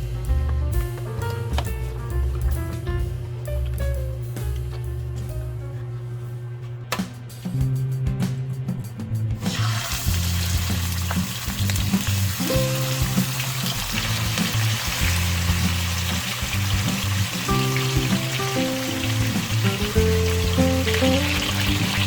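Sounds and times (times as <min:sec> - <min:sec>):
background music: 0:00.0 - 0:22.0
food sizzling in hot oil: 0:09.4 - 0:22.0.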